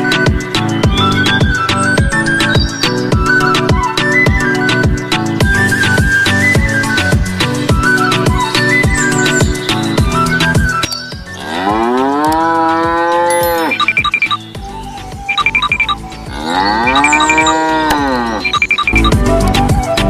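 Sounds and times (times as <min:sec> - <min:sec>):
cow mooing: 0:11.4 - 0:13.8, 0:16.3 - 0:18.6
bell ringing in short strokes: 0:13.3 - 0:14.3.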